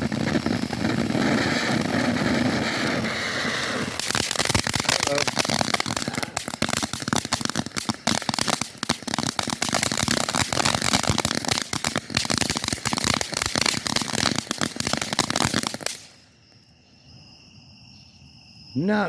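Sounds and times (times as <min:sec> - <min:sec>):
firework crackling with rapid pops: 0:00.0 - 0:16.3
crickets chirping faintly: 0:00.0 - 0:19.0.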